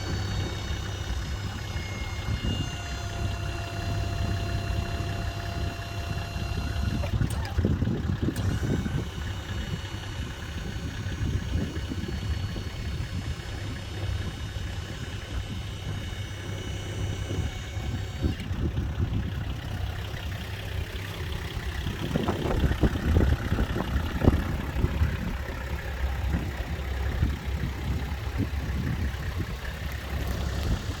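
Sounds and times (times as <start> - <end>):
truck engine idling: 0.0 - 31.0.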